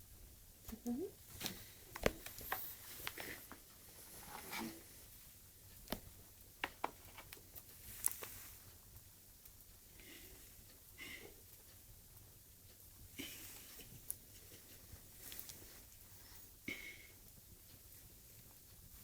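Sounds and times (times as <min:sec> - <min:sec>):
small clicks and taps: 0:00.6 - 0:03.8, 0:05.7 - 0:08.8.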